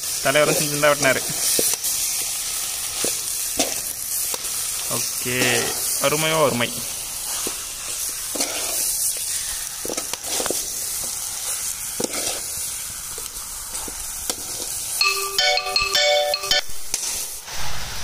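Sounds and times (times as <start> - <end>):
chicken sizzling in hot oil: 0.0 - 15.4, 16.7 - 18.0
metal ladle scraping pan: 7.3 - 10.7, 12.0 - 12.5.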